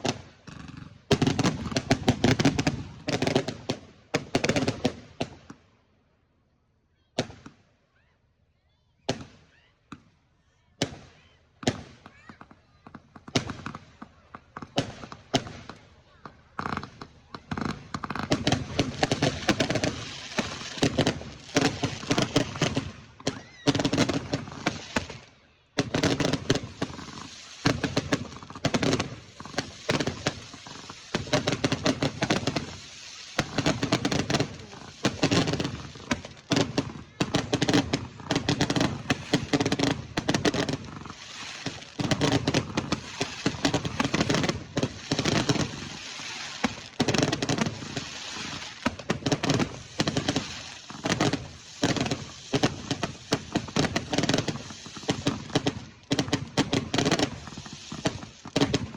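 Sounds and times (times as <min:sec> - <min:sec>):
fireworks banging and crackling: 0:00.0 - 0:05.6, 0:07.2 - 0:07.7, 0:09.1 - 0:10.2, 0:10.8 - 0:58.9.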